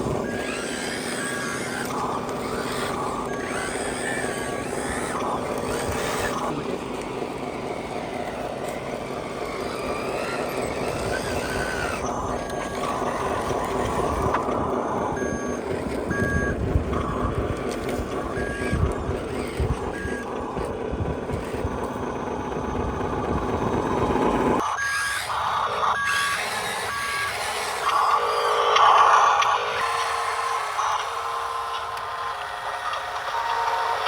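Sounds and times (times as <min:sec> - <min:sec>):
toy truck motor running: 0:00.0 - 0:34.0
short reversing beeps: 0:11.0 - 0:17.4, 0:18.1 - 0:20.3.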